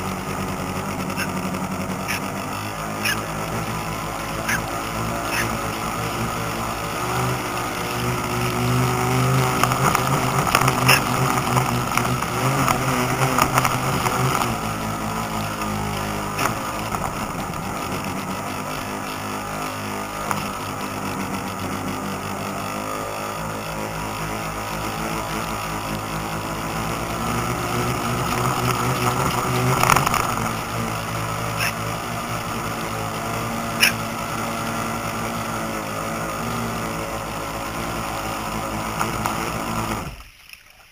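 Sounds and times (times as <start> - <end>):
boat motor running: 0.0 - 40.5
water noise: 0.0 - 40.9
small splashes: 40.1 - 40.9.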